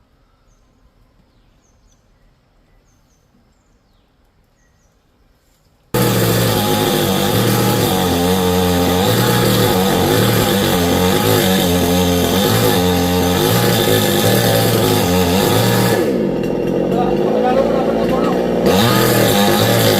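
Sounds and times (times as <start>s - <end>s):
chainsaw cutting wood: 6.0s - 19.9s.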